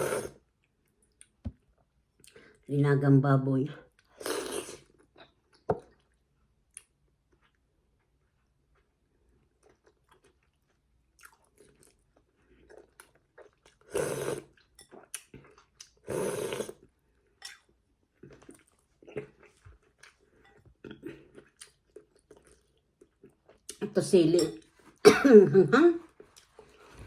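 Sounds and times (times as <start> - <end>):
person chewing and crunching food: 3.9 - 23.8, 26.1 - 27.0.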